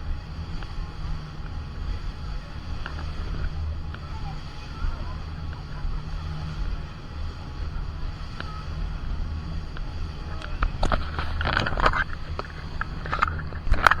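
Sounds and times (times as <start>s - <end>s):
boat engine humming: 0.0s - 14.0s.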